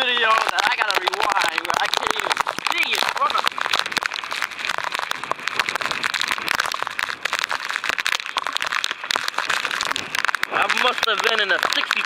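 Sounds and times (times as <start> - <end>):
rain drops hitting microphone: 0.0 - 12.0
steady rain hiss: 0.0 - 12.0.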